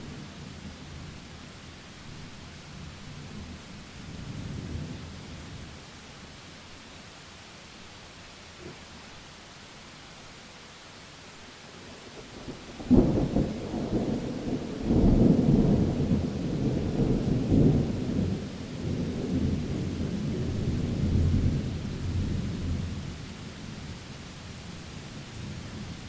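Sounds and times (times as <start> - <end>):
rain hissing: 0.0 - 26.0
thunder cracking and rumbling: 12.3 - 23.0.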